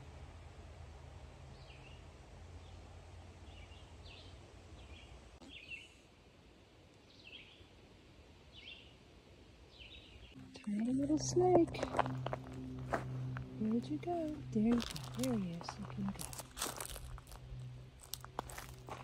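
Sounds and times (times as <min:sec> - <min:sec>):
faint songbird song: 0:01.4 - 0:06.1, 0:06.9 - 0:11.4
low rumble: 0:10.3 - 0:19.0.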